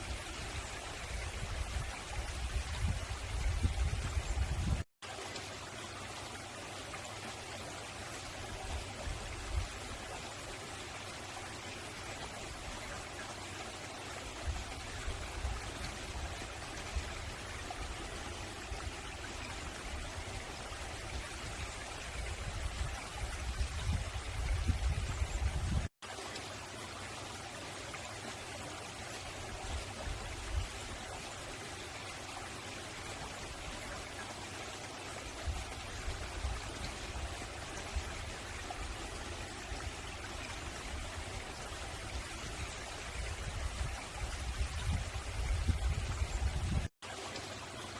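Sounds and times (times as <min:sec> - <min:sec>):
stream running over rocks: 0:00.0 - 0:47.9.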